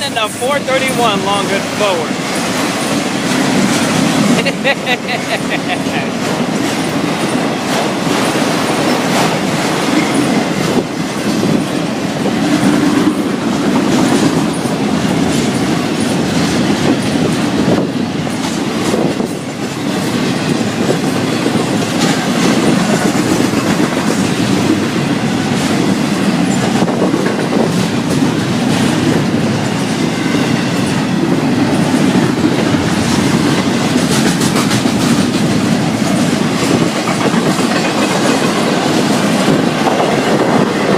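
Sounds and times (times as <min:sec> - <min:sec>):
freight train rumbling past: 0:00.0 - 0:40.9
wheels clicking over rail joints: 0:30.7 - 0:40.9.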